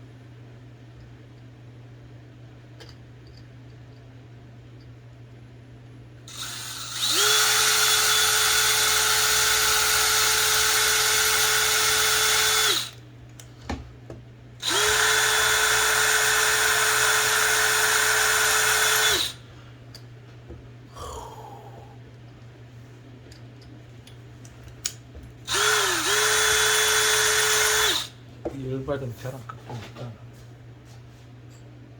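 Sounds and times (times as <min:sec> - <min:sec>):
power drill whining: 0:06.3 - 0:13.0, 0:14.6 - 0:19.4, 0:25.5 - 0:28.1.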